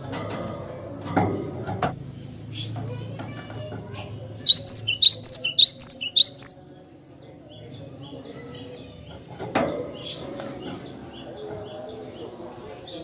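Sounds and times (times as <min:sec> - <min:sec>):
bird chirps: 0:04.4 - 0:06.7.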